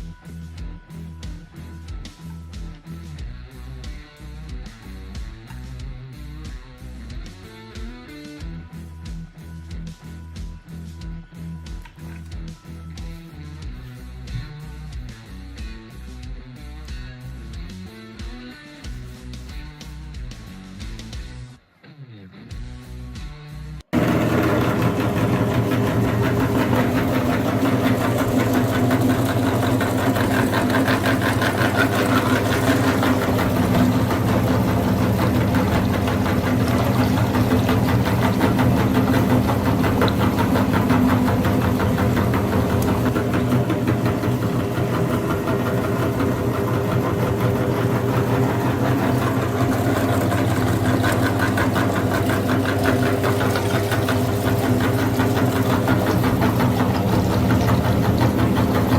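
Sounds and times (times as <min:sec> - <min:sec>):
tractor engine knocking: 0:24.0 - 0:58.9.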